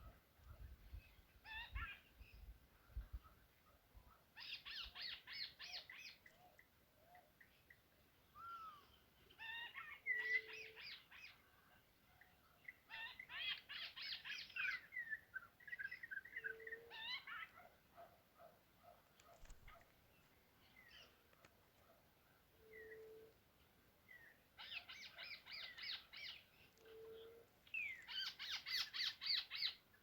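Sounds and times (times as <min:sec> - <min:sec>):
bird chirps: 0:04.4 - 0:11.4, 0:12.6 - 0:17.6, 0:24.1 - 0:29.8.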